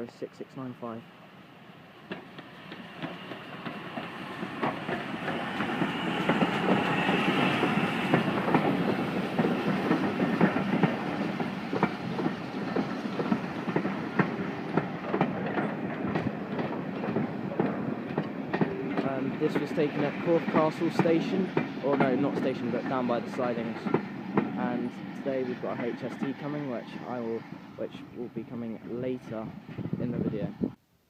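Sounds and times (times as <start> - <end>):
steam train passing: 0.0 - 30.6.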